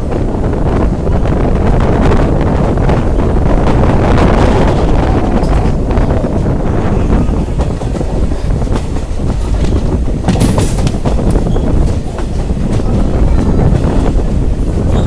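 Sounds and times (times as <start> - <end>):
heavy train rumble: 0.0 - 15.0
train wheels clattering over rail joints: 2.6 - 15.0.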